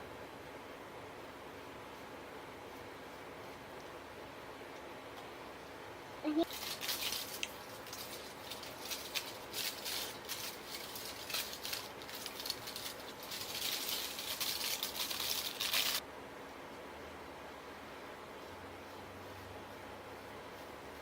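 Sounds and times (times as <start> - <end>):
aluminium foil crinkling: 6.4 - 16.0.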